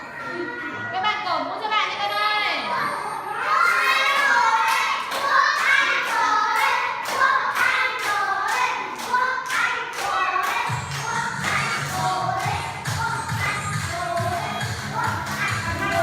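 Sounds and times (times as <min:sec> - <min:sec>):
children singing: 0:02.6 - 0:16.0
hand claps: 0:04.6 - 0:12.6
bass beat: 0:10.7 - 0:16.0.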